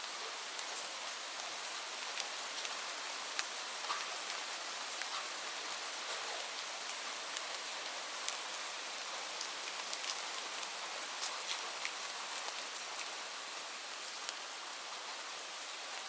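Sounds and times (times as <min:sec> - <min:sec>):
rain falling on leaves: 0:00.0 - 0:16.0.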